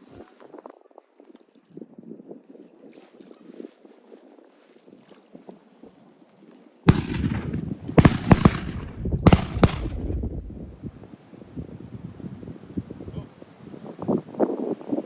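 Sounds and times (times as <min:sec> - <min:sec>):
shotgun blasts: 0:06.9 - 0:10.8
low rumbling echo: 0:06.9 - 0:10.9.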